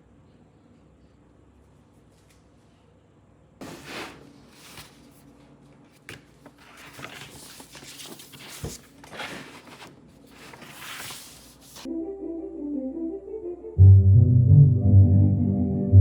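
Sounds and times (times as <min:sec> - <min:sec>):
rustling and clicking handling noises: 0:04.6 - 0:11.9.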